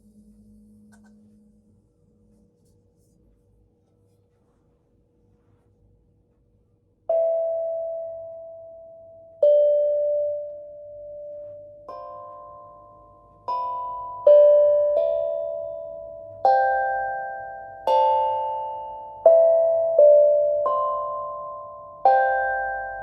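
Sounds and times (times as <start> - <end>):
tuned instrument single notes: 0.0 - 2.4.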